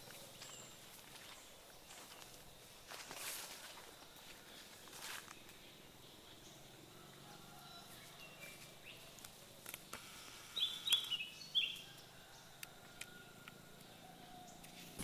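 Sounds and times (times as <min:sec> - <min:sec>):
forest birds calling: 0:00.0 - 0:15.0
faint bird chirps: 0:04.2 - 0:15.0.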